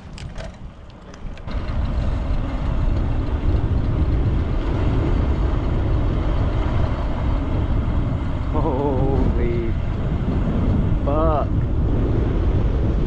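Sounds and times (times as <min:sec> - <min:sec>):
light bicycle clicks: 0:00.0 - 0:01.6
wind and road rumble: 0:00.0 - 0:13.0.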